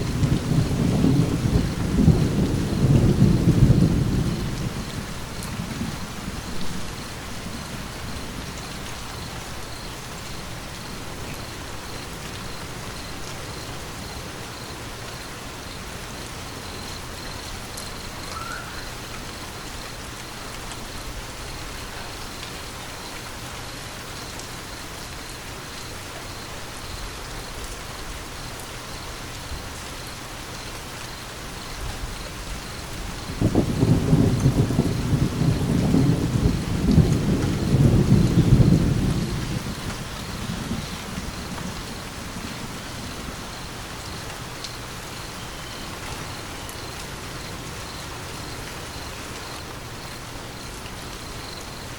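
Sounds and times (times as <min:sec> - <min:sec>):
low thunder rumble: 0:00.0 - 0:11.2, 0:32.5 - 0:44.2
steady rain hissing: 0:00.0 - 0:51.9.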